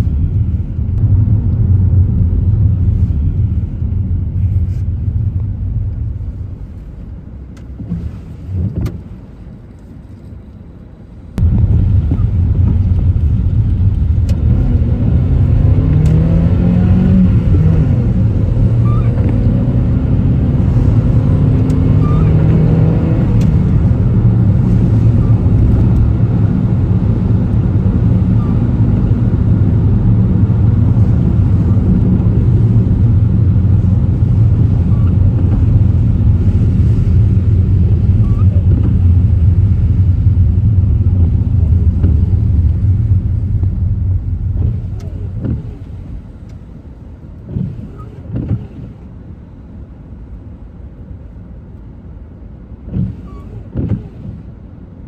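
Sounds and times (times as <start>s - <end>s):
car engine rumble: 0.0s - 55.0s
road noise: 0.0s - 55.0s.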